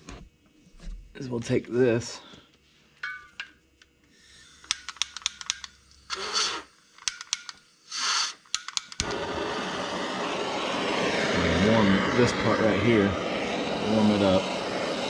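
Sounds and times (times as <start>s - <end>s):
short hisses: 6.1s - 7.0s, 7.8s - 15.0s
tire repair tools clicking: 8.4s - 9.0s
loud steady noise: 9.0s - 15.0s.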